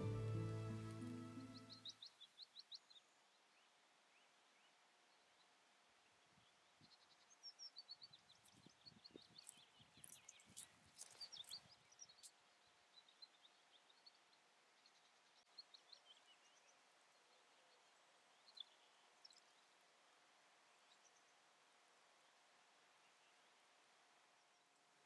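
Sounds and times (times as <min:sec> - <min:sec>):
faint birdsong: 0:00.0 - 0:25.0
soft crackles and clicks: 0:08.3 - 0:12.4.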